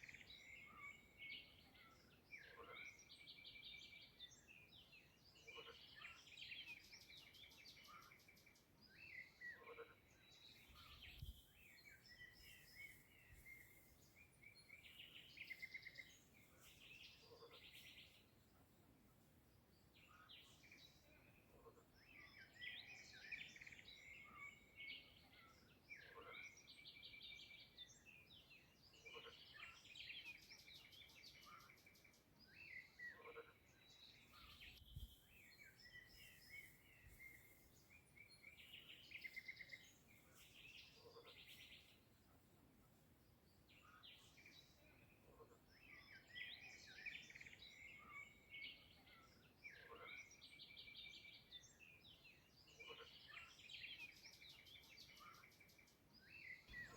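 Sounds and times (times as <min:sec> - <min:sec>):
songbirds singing: 0:00.0 - 0:56.9.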